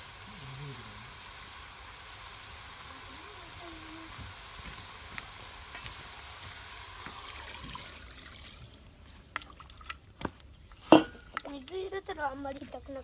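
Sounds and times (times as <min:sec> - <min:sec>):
beef sizzling in a pot: 0:00.0 - 0:08.7.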